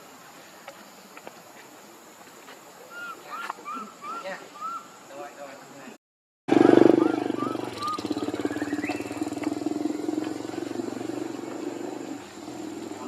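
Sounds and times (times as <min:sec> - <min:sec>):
small engine pulsing steadily: 0:06.5 - 0:13.0.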